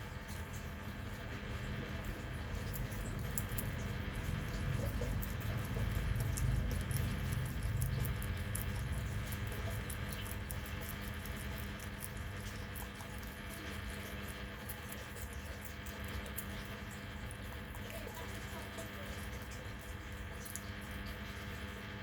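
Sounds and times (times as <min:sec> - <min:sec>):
steady low hum: 0:00.0 - 0:22.0
small animals nibbling food: 0:00.2 - 0:22.0.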